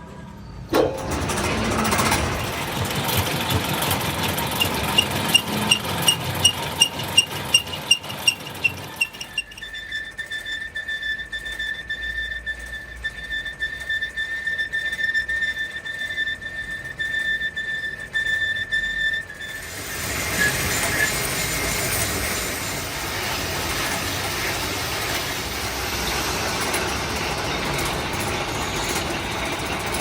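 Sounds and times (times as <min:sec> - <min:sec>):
machine tool high whine: 0:00.0 - 0:30.0
machine tool rumble: 0:00.0 - 0:30.0
rapid even ticking: 0:01.2 - 0:11.8.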